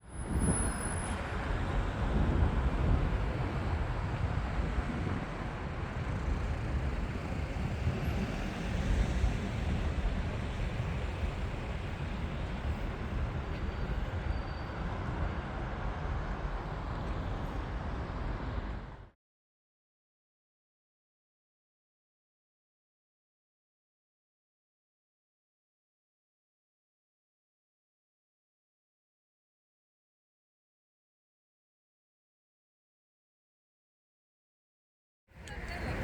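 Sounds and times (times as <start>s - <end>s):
city traffic rumble: 0.0s - 19.1s, 35.4s - 36.0s.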